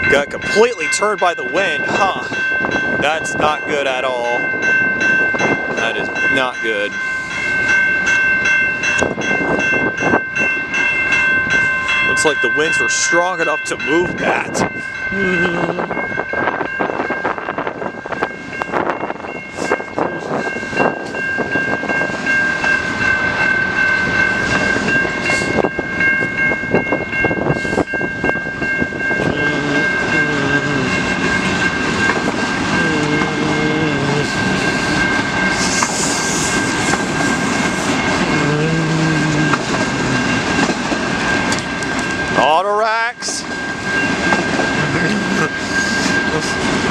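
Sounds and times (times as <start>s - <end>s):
steady high ringing tone: 0.0s - 46.9s
train wheels clicking over rail joints: 34.5s - 38.3s.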